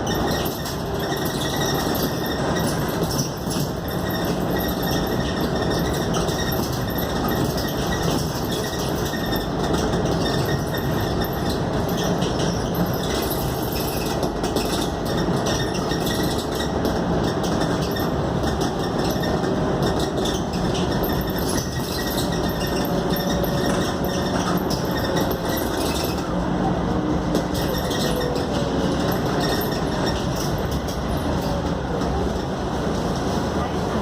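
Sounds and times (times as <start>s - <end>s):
bus diesel engine running: 0.0s - 34.0s
road noise: 0.0s - 34.0s
bodywork rattling and clinking: 0.2s - 26.3s.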